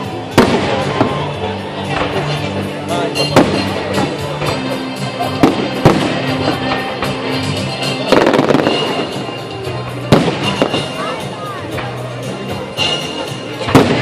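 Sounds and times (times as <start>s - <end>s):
fireworks crackling: 0.0s - 14.0s
music: 0.0s - 14.0s
fireworks bangs: 0.3s - 2.4s, 3.2s - 4.6s, 5.3s - 7.2s, 7.8s - 9.4s, 10.0s - 11.2s, 13.6s - 14.0s.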